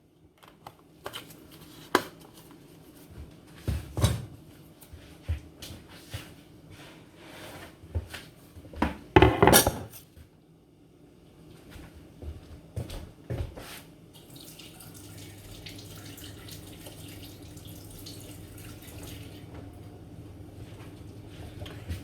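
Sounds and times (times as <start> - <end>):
utensils and pots clinking: 9.2 - 10.0.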